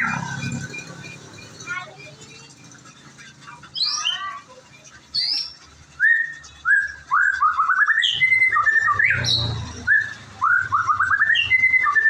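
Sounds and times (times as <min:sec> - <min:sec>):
bird singing whistled phrases: 0:05.1 - 0:12.0.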